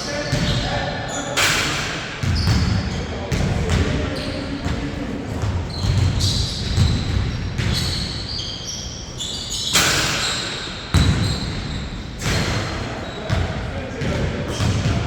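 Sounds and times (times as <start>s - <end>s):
basketball bouncing on court: 2.2s - 8.4s, 10.9s - 15.0s
shoes squeaking on floor: 5.6s - 13.4s.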